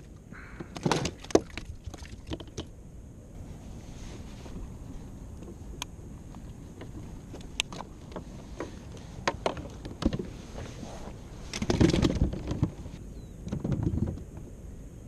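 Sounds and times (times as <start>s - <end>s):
knocks and clicks against hull: 0.0s - 2.7s, 5.3s - 10.8s, 11.5s - 14.5s.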